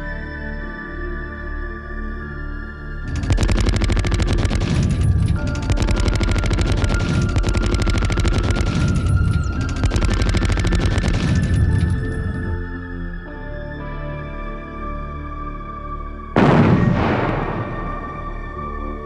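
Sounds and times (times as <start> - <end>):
soundtrack music: 1.4 - 19.0
machine-gun fire bursts: 3.1 - 12.4.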